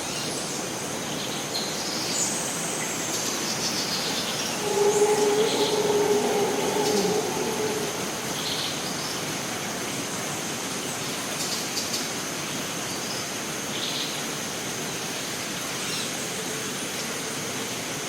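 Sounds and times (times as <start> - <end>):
high insect drone: 4.2 - 9.9.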